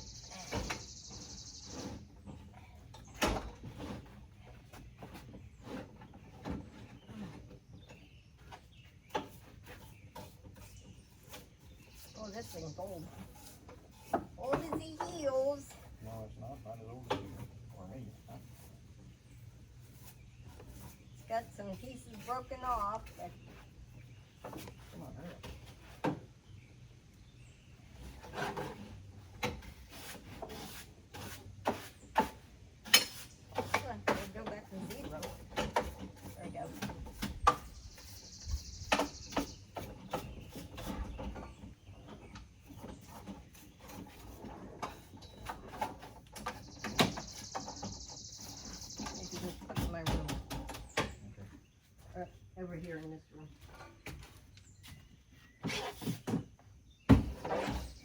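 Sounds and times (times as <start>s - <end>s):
rubbing and scraping: 0.4s - 26.7s, 27.4s - 58.0s
objects knocking and clunking: 13.1s - 15.5s, 28.0s - 37.8s, 49.0s - 51.6s, 55.6s - 58.0s.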